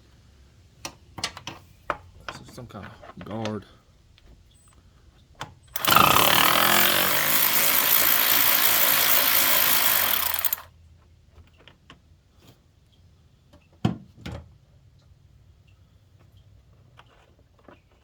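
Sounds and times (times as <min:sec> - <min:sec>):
power tool running: 0:05.8 - 0:10.7.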